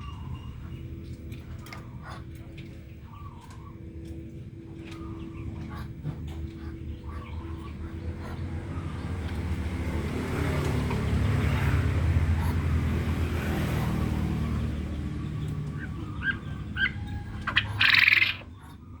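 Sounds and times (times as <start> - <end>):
vehicle engine hum: 0.0 - 19.0
quail chirps: 1.6 - 4.1, 14.5 - 19.0
quail rattling chattering call: 15.4 - 18.8.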